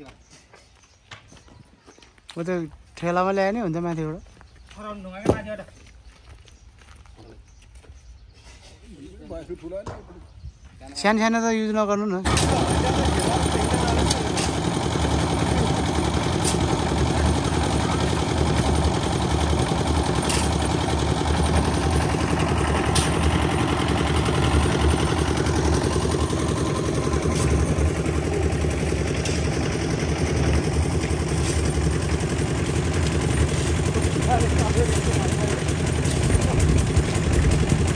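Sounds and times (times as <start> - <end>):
engine running: 12.3 - 37.9.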